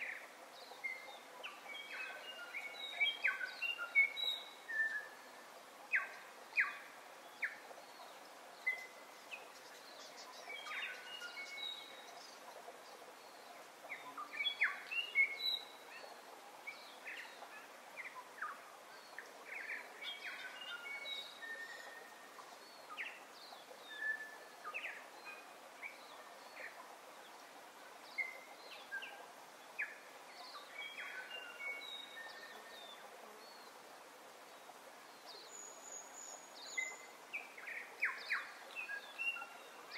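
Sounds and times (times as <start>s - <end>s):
outdoor background hiss: 0.0s - 39.9s.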